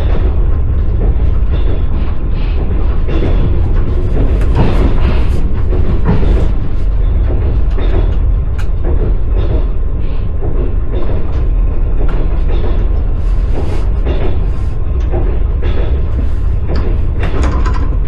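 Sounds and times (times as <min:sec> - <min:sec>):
train wheels clattering over rails: 0:00.0 - 0:18.0.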